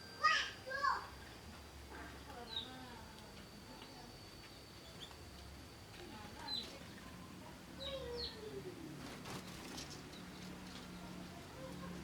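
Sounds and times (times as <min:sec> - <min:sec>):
small birds chirping: 0:00.2 - 0:12.0.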